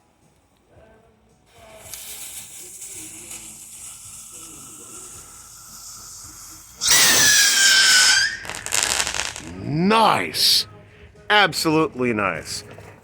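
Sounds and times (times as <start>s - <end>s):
rocket fuse hissing: 1.5s - 9.6s
rocket launching with shrill scream: 6.8s - 9.5s.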